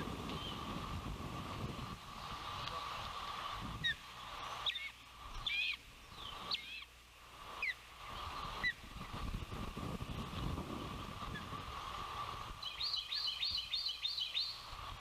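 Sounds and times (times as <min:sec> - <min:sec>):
osprey whistled calls: 0:03.8 - 0:06.9, 0:07.5 - 0:08.8, 0:12.6 - 0:14.8.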